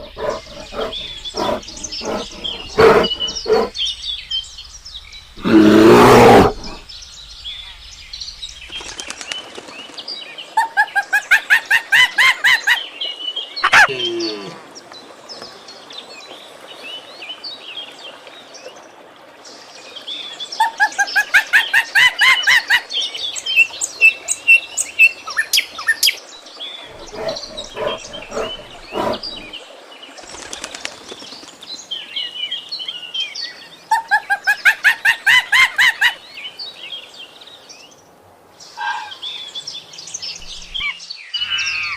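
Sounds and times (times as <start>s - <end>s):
bird trilling: 0.0s - 3.7s, 26.9s - 29.5s
bird chirps: 26.9s - 29.6s.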